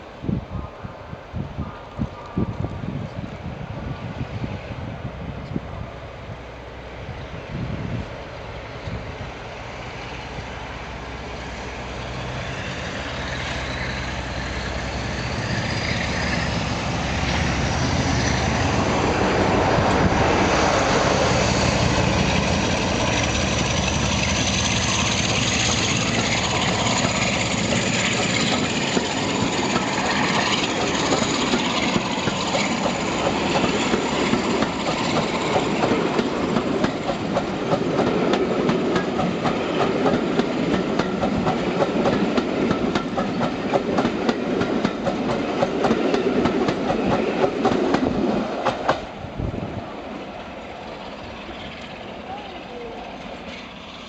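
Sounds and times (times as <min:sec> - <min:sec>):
diesel locomotive engine: 0:00.0 - 0:54.0
wheels clicking over rail joints: 0:22.2 - 0:49.2.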